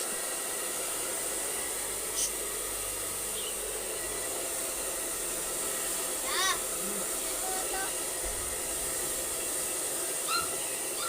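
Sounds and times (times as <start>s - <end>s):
blower hissing air: 0.0s - 11.0s.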